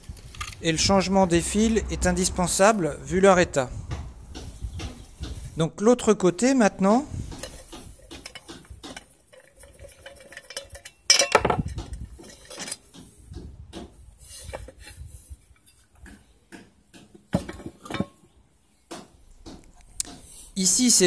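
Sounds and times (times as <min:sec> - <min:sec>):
metal clatter: 0:07.3 - 0:13.4, 0:14.2 - 0:16.2, 0:17.0 - 0:18.4
metal clinks and knocks: 0:07.3 - 0:18.4.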